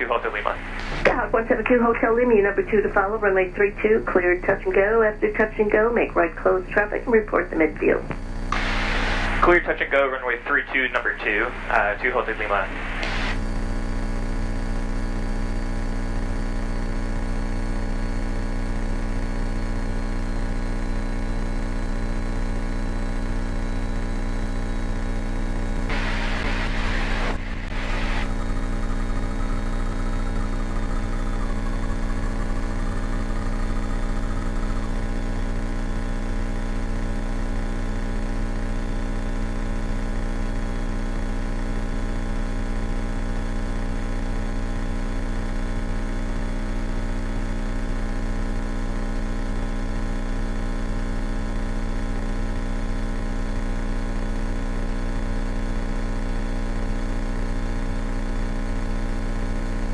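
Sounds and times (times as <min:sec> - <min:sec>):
aircraft engine and propeller drone: 0:00.0 - 0:13.5, 0:25.9 - 0:36.6.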